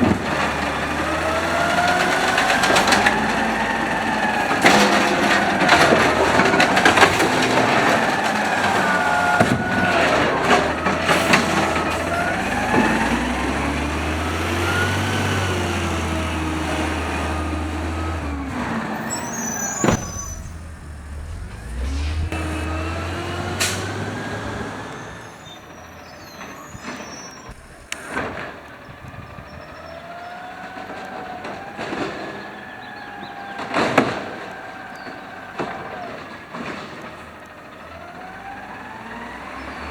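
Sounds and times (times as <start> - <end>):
hydraulics working: 0.0 - 32.0
garbage truck engine revving: 0.0 - 39.9
metal bangs and clanks: 16.9 - 24.8.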